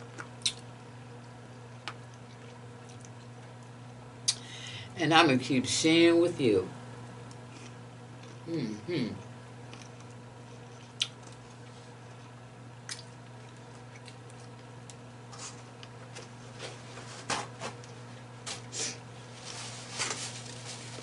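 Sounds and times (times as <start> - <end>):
steady low hum: 0.0 - 21.0
lip smacks: 0.2 - 0.6, 12.8 - 13.2
wet chewing: 1.8 - 3.7, 9.7 - 15.0.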